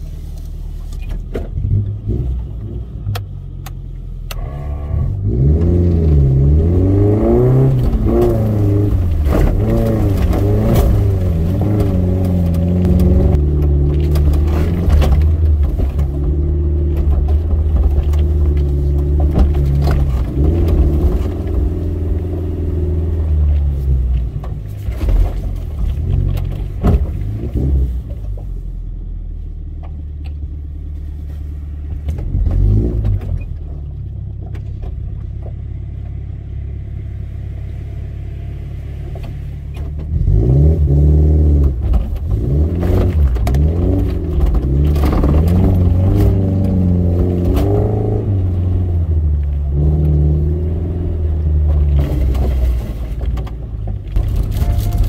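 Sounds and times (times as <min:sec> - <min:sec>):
engine revving: 0:04.3 - 0:24.0, 0:36.6 - 0:52.9.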